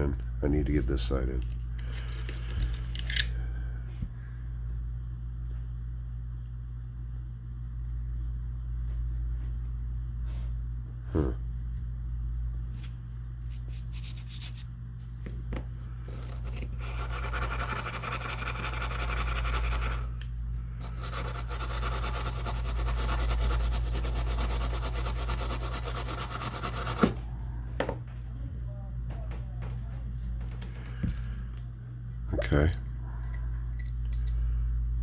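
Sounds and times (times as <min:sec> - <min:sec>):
low hum: 0:00.0 - 0:35.0
metal parts clicking: 0:01.4 - 0:03.4.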